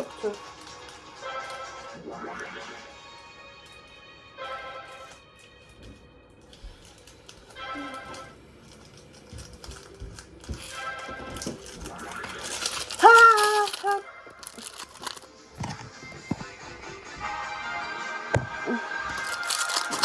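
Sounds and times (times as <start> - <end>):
background music: 0.0 - 20.0
plastic toy clattering and rattling: 6.5 - 16.4, 19.1 - 20.0.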